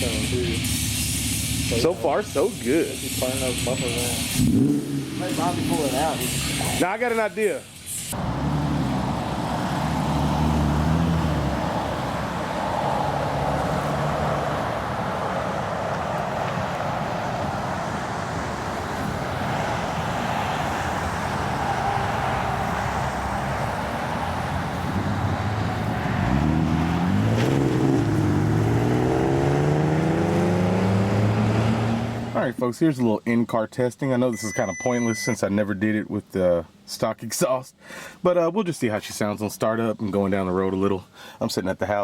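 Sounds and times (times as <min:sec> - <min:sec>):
car engine revving through exhaust: 0:03.0 - 0:06.8, 0:08.1 - 0:32.4.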